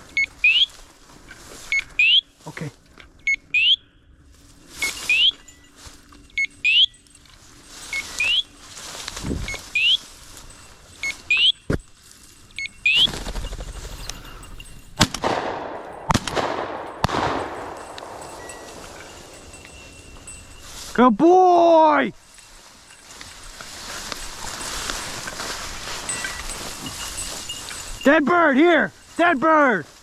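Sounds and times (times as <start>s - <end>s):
beeper collar chirping: 0.0s - 0.8s, 1.7s - 2.4s, 3.2s - 4.0s, 4.8s - 7.2s, 7.8s - 8.8s, 9.4s - 15.0s, 15.6s - 21.0s, 24.1s - 29.3s
shotgun shots: 15.0s - 18.9s.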